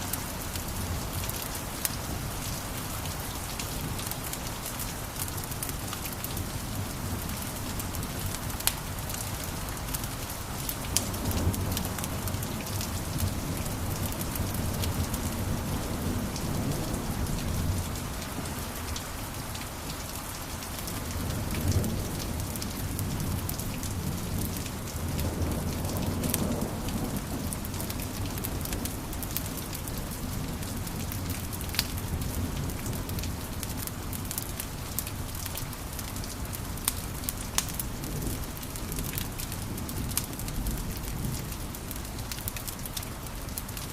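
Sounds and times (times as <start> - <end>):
wood fire crackling: 16.1 - 43.9.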